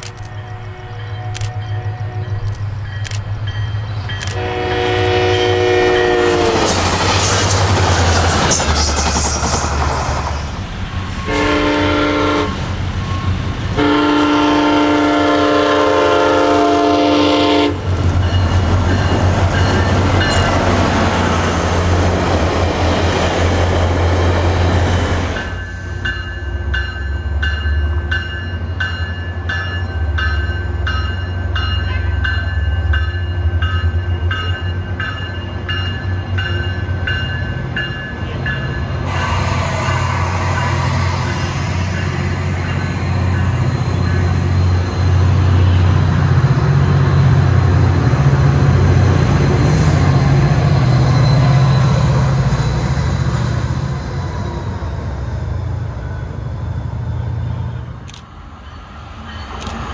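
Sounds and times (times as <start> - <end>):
train engine rumble: 0.0 - 59.9
bell ringing steadily: 0.3 - 4.3, 25.4 - 38.9
locomotive horn: 4.2 - 6.8, 11.2 - 12.7, 13.8 - 17.9.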